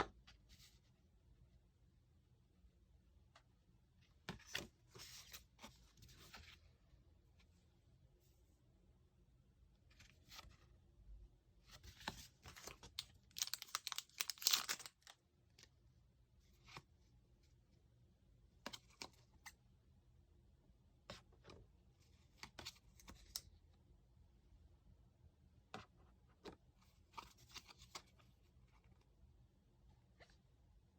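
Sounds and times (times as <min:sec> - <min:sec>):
packaging tearing and crinkling: 0:13.3 - 0:15.1.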